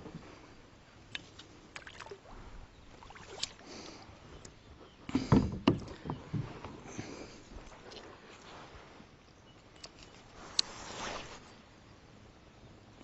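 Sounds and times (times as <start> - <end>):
knocks and bumps on kayak: 5.2 - 6.8.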